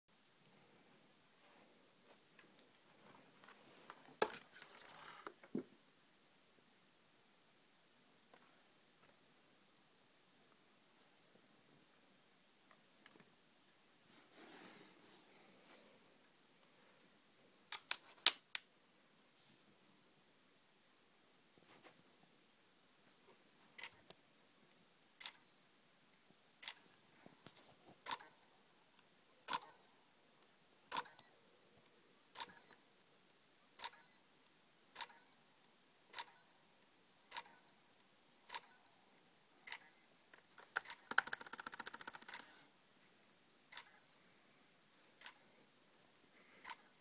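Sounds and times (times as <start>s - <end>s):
rapid buzzing clicks: 40.4s - 42.6s.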